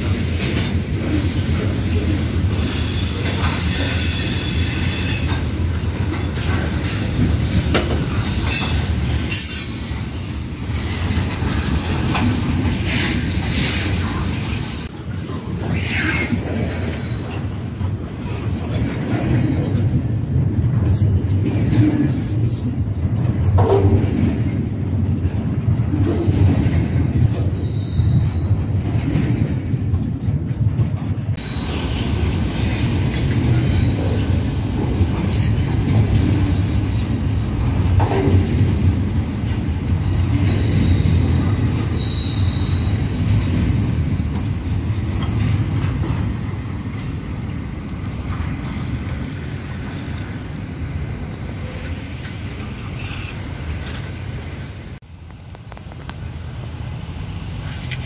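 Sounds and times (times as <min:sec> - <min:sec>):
train wheels rumbling on rail: 0:00.0 - 0:58.0
high-pitched wheel squeals: 0:26.7 - 0:28.9, 0:40.6 - 0:43.5.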